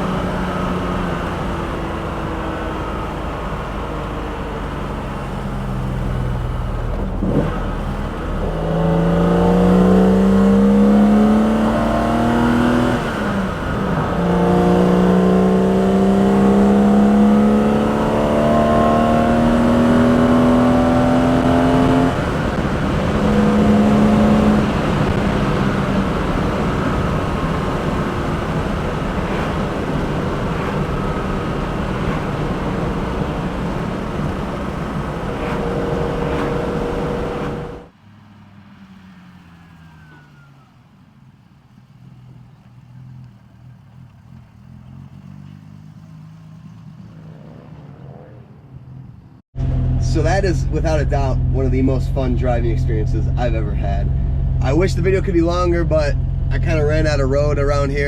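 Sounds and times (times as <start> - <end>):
car engine revving hard: 0.0 - 37.9, 49.6 - 58.0
road noise: 0.0 - 58.0.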